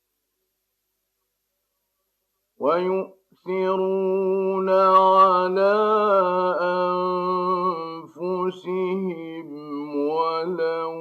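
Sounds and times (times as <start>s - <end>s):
man reciting in melodic chant: 2.6s - 11.0s.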